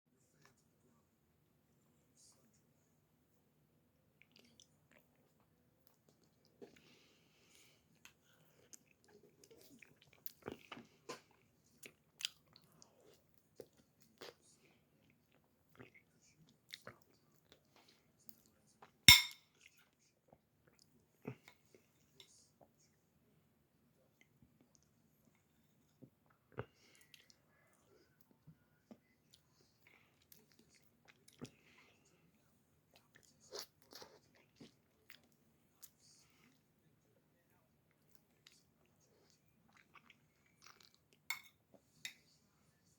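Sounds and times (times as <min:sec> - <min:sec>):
person chewing and lip smacking: 0:37.9 - 0:41.2.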